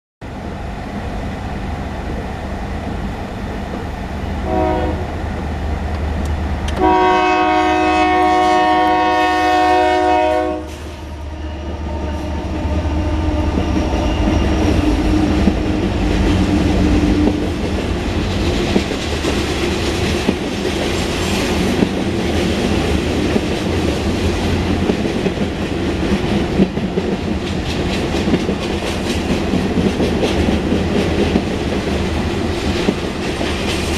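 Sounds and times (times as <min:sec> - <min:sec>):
train air horn: 0:04.4 - 0:05.2, 0:06.8 - 0:15.1
train wheels clattering on rails: 0:12.1 - 0:33.9.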